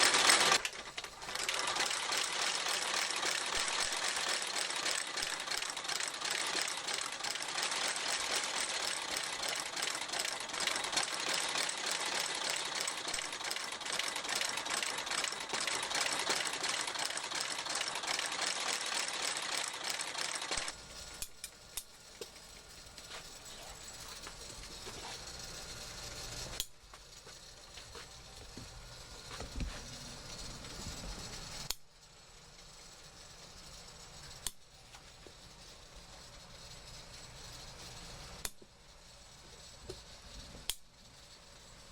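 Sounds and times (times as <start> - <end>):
stitching machine running: 0.0 - 26.8.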